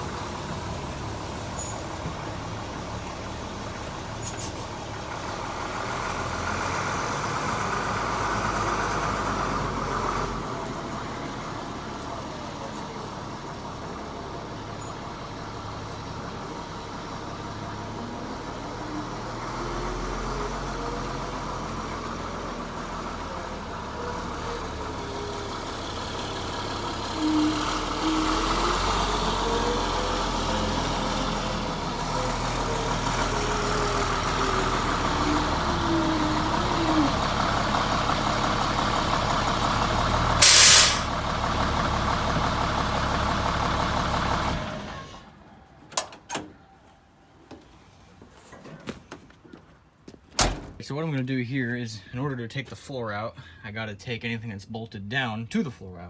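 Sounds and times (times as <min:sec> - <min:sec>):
diesel truck engine running: 0:00.0 - 0:46.0
air brake hiss: 0:40.4 - 0:41.2.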